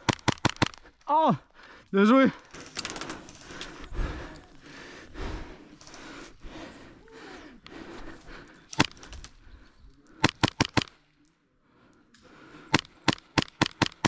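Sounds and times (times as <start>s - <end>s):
airsoft gun shots: 0.0s - 0.8s, 10.2s - 10.9s, 12.7s - 14.0s.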